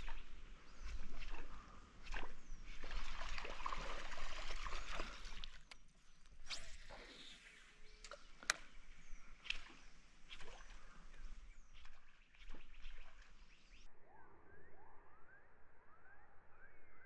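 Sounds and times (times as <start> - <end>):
birds chirping: 0.0 - 6.2, 6.9 - 13.9.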